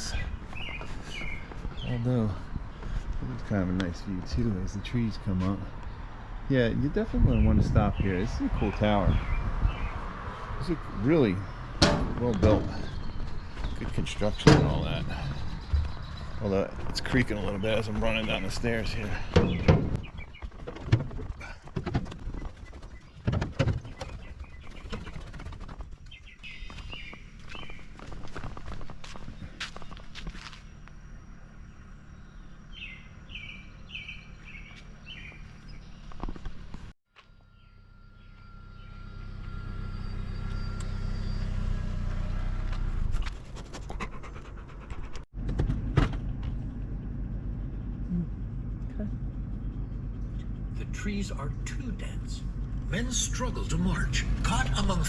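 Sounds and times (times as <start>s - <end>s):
bird chirping: 0.0s - 21.5s, 22.2s - 36.4s, 37.4s - 41.6s
car rumble: 0.0s - 55.0s
sharp clicks and knocks: 11.8s - 15.0s
dog panting: 43.2s - 45.3s, 47.4s - 50.8s.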